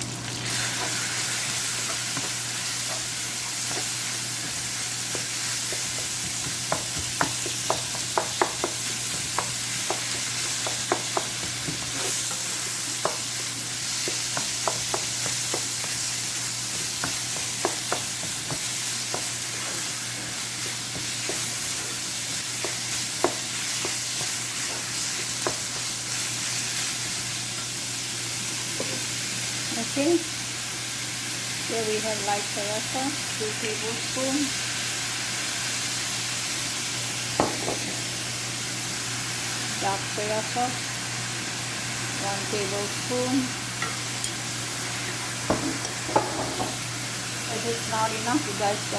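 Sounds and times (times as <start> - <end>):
chicken frying in hot oil: 0.0 - 37.5.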